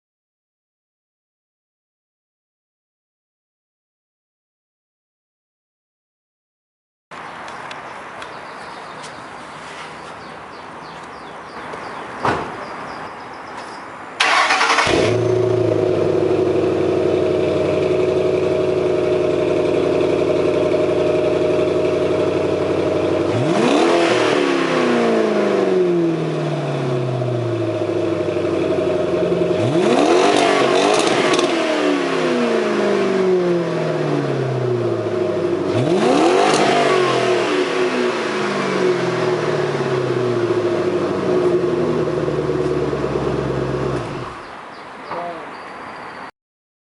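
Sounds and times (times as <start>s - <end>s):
click: 7.4s - 8.3s
car engine idling and revving: 14.2s - 44.6s.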